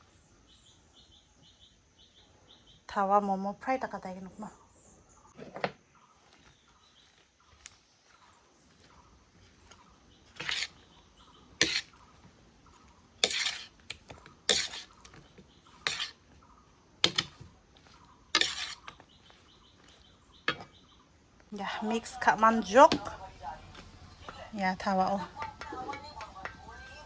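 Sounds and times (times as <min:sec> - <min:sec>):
utensil scraping a pan: 0:09.4 - 0:12.1, 0:12.8 - 0:16.3, 0:17.0 - 0:20.8.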